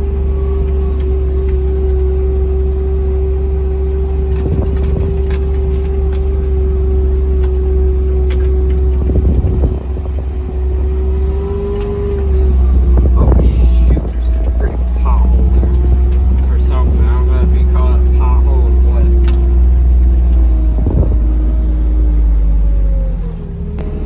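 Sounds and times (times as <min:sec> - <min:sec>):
steady whine: 0:00.0 - 0:24.0
vehicle engine rumble: 0:00.0 - 0:24.0
rattles and bumps: 0:03.7 - 0:22.8.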